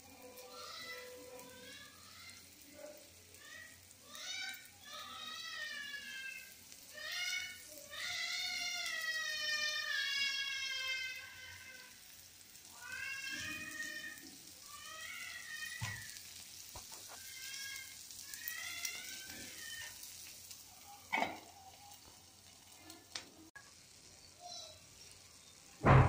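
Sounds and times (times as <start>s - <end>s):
batter sizzling in oil: 0.0s - 26.0s
metal lid clanking onto pan: 21.1s - 21.5s.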